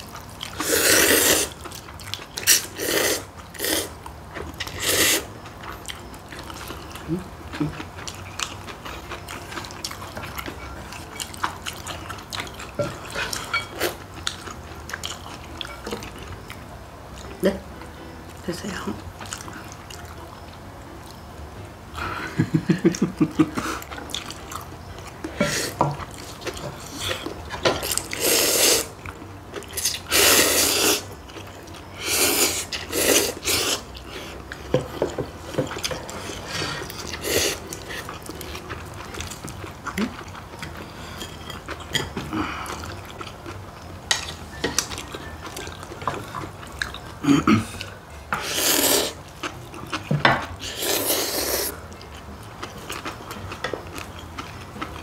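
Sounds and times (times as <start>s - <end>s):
quiet chewing: 0.0s - 17.4s, 18.3s - 21.2s, 22.0s - 55.0s
loud wet noodle slurps: 0.6s - 1.6s, 28.2s - 28.9s, 29.8s - 31.0s, 32.0s - 33.8s, 48.4s - 49.2s, 50.6s - 51.8s.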